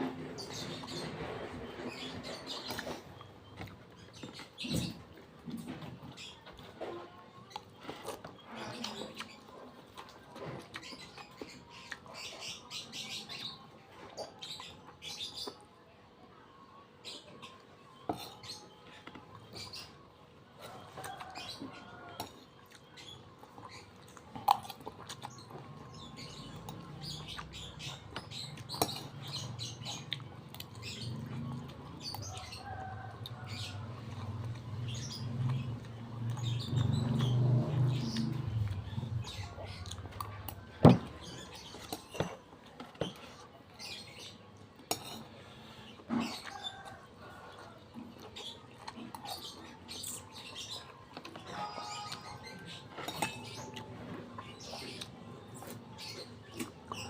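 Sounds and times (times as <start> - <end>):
person chewing: 23.4 - 25.9.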